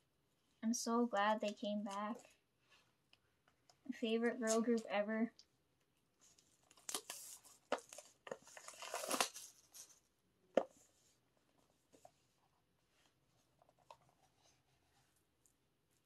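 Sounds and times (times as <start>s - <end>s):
packaging crinkling and tearing: 6.6s - 9.9s.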